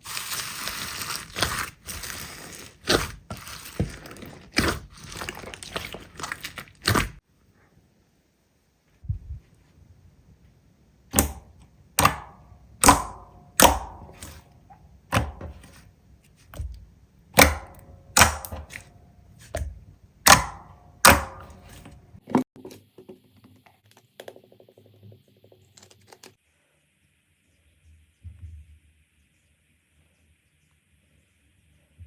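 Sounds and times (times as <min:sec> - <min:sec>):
slime crackling when pressed: 0:00.0 - 0:07.2.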